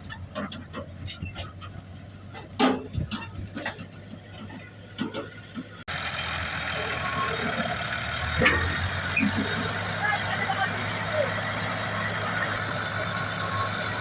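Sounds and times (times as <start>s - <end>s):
engine running: 0.0s - 14.0s
scattered clicks and knocks: 0.1s - 5.8s.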